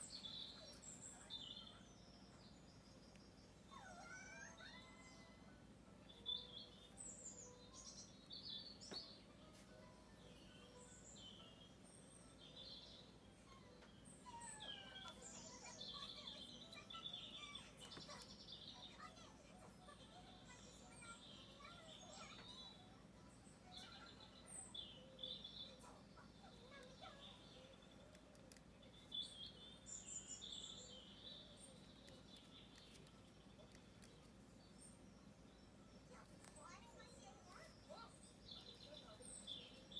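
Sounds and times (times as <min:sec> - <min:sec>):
birds chirping and calling: 0:14.0 - 0:39.9.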